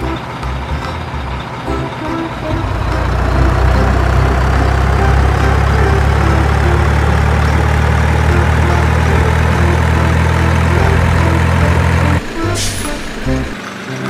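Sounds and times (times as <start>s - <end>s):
truck engine idling: 0.0s - 14.0s
brief hiss: 12.3s - 13.4s.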